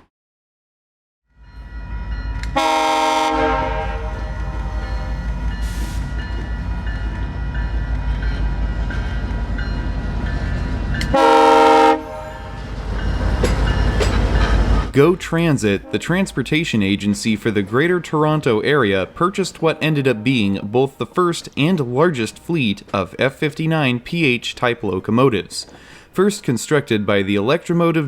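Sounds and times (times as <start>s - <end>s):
diesel locomotive rumbling: 1.4s - 25.0s
train horn chord blasts: 2.4s - 6.2s, 11.0s - 12.7s.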